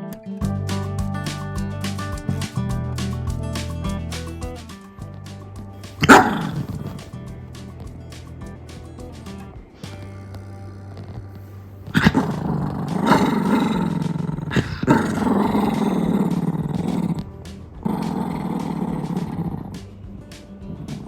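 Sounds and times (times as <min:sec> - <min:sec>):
background music: 0:00.0 - 0:21.0
dog growling: 0:06.0 - 0:07.1, 0:10.2 - 0:19.8.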